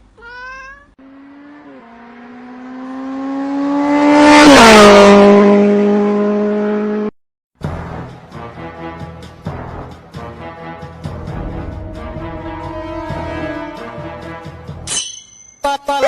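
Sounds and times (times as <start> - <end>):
motor vehicle driving past: 1.0 - 8.1, 11.1 - 14.4.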